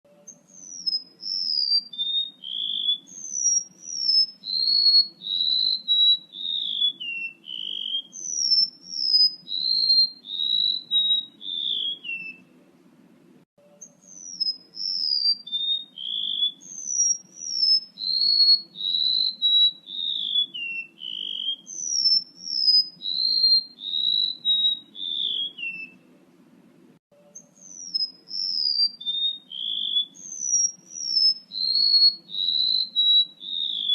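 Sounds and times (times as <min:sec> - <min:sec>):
bird whistled call: 0:00.1 - 0:12.5, 0:13.7 - 0:26.1, 0:27.3 - 0:33.9
faint low hum: 0:05.2 - 0:16.0, 0:23.8 - 0:28.5.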